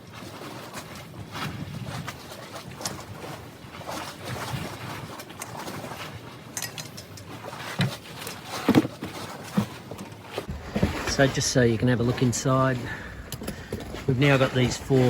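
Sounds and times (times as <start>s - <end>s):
outdoor background noise: 0.0s - 15.0s
tools and metal parts knocking: 13.2s - 14.1s.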